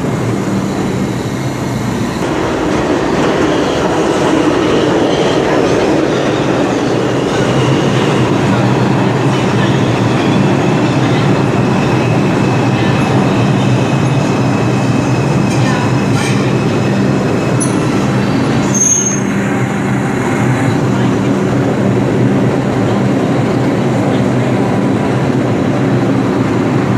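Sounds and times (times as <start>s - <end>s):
subway train wheels rumbling: 0.0s - 26.9s
high-pitched wheel squeal: 18.6s - 19.5s.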